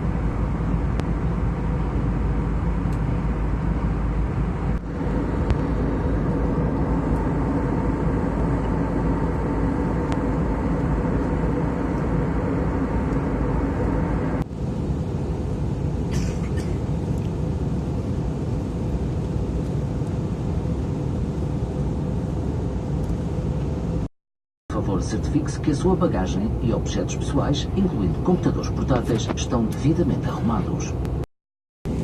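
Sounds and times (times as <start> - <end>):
aircraft cabin engine rush: 0.0 - 24.1, 24.8 - 31.2
low hum: 0.0 - 24.1.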